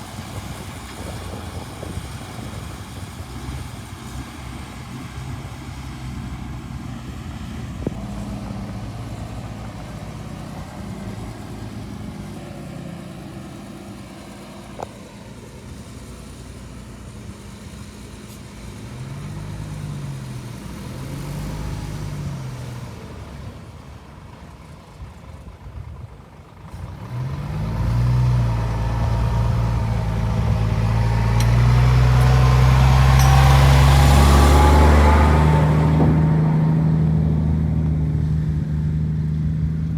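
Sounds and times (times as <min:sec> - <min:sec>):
bulldozer diesel engine: 0:00.0 - 0:39.9
rising whine: 0:28.6 - 0:37.5.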